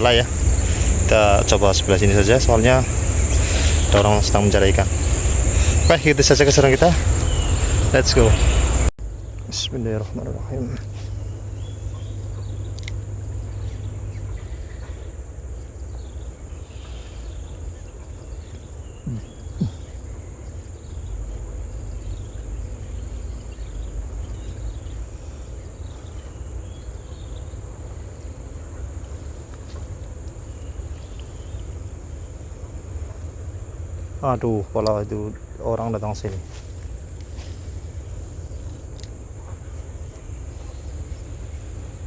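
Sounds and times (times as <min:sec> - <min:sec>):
faint chirps: 0:00.0 - 0:15.1, 0:18.3 - 0:28.0, 0:34.2 - 0:41.9
insects trilling: 0:00.0 - 0:42.0
low rumble of wind or water: 0:00.0 - 0:42.0.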